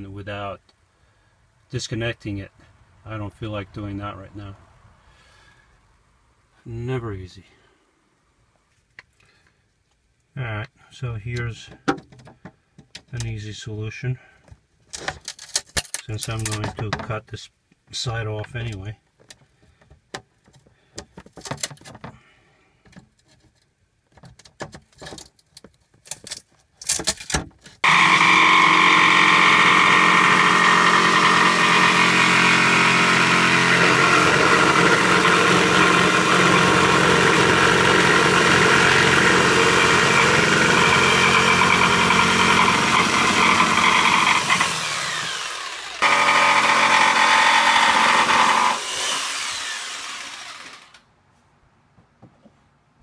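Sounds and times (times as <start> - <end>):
handling clicks and knocks: 14.5 - 17.2, 18.4 - 22.2, 22.8 - 27.8
power saw cutting wood: 27.8 - 51.0.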